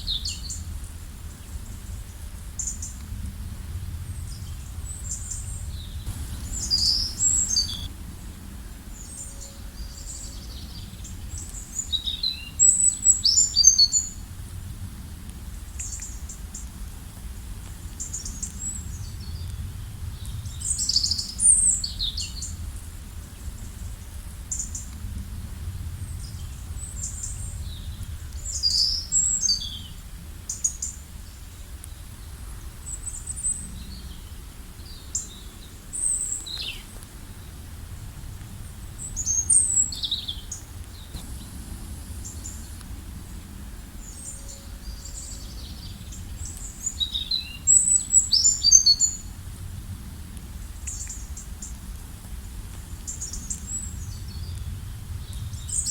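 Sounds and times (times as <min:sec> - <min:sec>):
low background rumble: 0:00.0 - 0:55.9
birds chirping: 0:04.4 - 0:07.9, 0:39.0 - 0:49.1.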